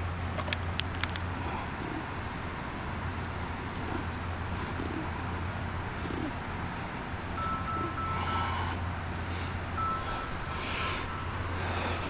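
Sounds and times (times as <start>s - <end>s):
low mechanical hum: 0.0s - 12.0s
outdoor background noise: 0.0s - 12.0s
light clicks: 0.2s - 6.4s.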